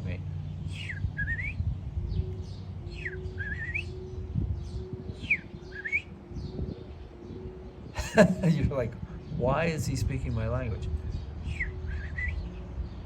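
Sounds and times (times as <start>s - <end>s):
person whistling birdsong: 0.7s - 6.8s, 11.4s - 12.5s.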